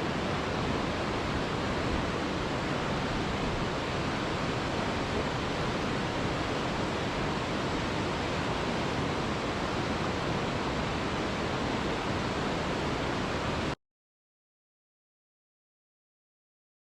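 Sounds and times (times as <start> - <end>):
river rushing: 0.0 - 13.8.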